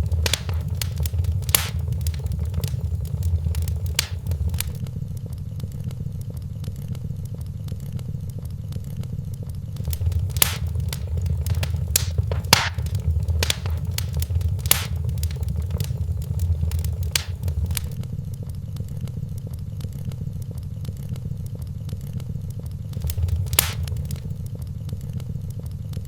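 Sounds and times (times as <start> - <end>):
fire crackling and popping: 0.0 - 4.8, 9.8 - 18.0, 22.9 - 24.6
fire flames rumbling: 0.0 - 4.8, 9.8 - 18.0, 23.0 - 24.5.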